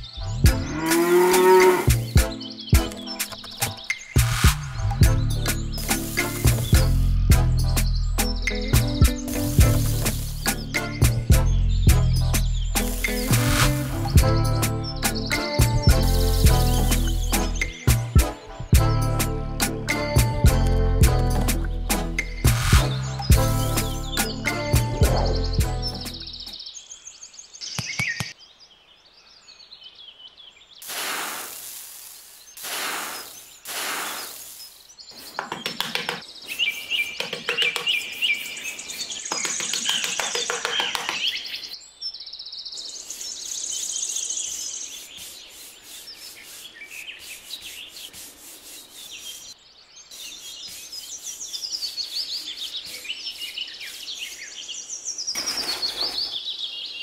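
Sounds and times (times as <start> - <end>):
birds chirping: 0.0 - 57.0
wood being sanded: 32.6 - 34.6, 44.9 - 49.6, 50.3 - 54.4.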